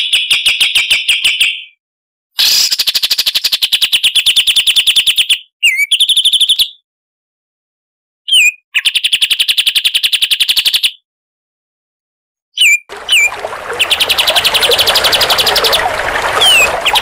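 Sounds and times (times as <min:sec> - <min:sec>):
songbird trilling: 0:08.3 - 0:09.7.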